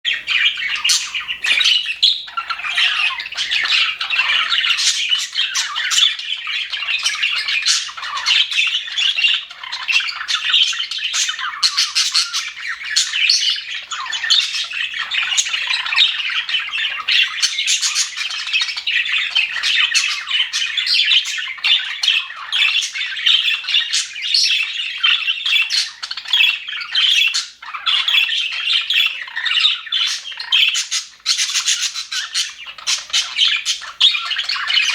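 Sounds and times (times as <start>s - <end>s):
budgerigars chattering: 0.1s - 34.9s.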